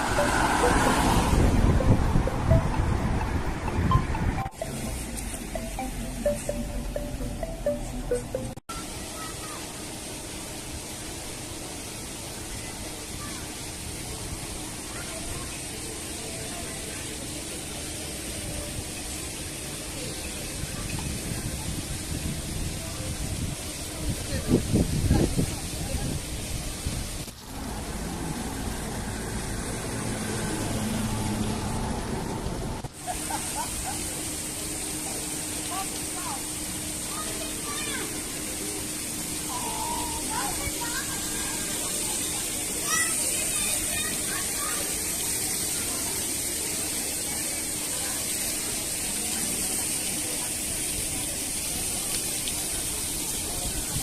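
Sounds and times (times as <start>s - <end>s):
constant high-pitched note: 0.0s - 12.9s, 33.1s - 48.3s
rushing outdoor hiss: 8.7s - 54.0s.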